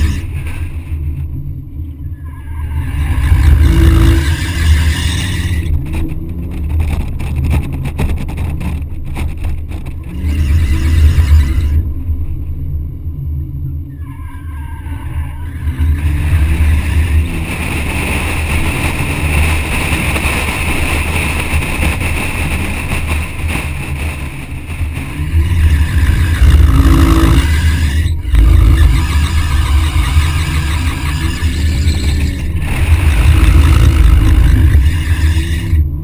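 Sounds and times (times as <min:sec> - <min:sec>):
car engine revving: 0:00.0 - 0:13.7, 0:14.8 - 0:36.0
wind buffeting microphone: 0:03.0 - 0:13.9, 0:15.1 - 0:36.0
tyres squealing: 0:25.1 - 0:35.9.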